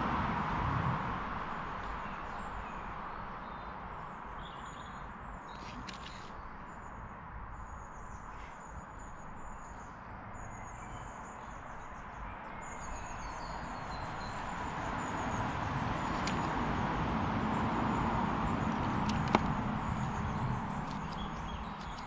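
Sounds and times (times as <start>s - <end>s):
birds chirping: 1.9s - 22.0s
sharp clicks: 16.1s - 16.8s, 18.5s - 22.0s.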